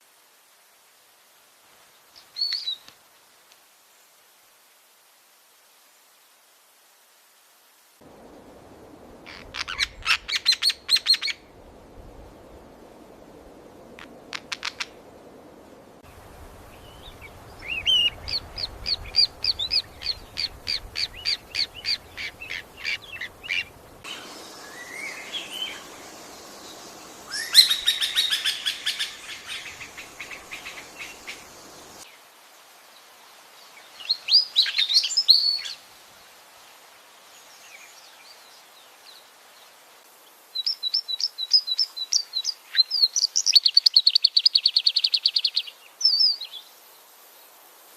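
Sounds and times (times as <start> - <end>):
birds calling: 16.5 - 32.0.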